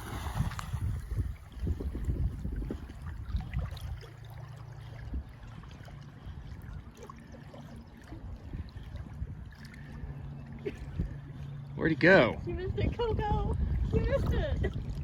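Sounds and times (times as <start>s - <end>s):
wind buffeting microphone: 0.0s - 4.2s, 4.8s - 7.0s, 8.0s - 15.0s
river water lapping: 0.0s - 15.0s.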